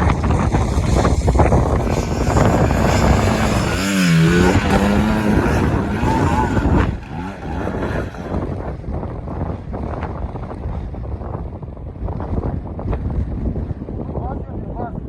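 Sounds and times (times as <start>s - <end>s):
motocross bike engine revving: 0.0s - 9.0s
wind buffeting microphone: 0.0s - 15.0s.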